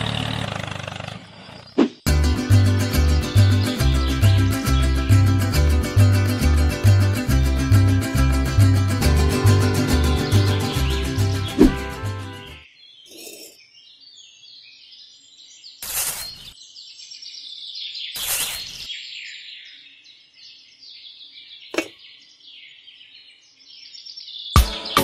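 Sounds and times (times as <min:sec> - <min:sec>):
birds chirping and twittering: 0:01.1 - 0:02.1, 0:03.2 - 0:05.4, 0:09.0 - 0:24.6
plucked guitar music: 0:02.1 - 0:12.6.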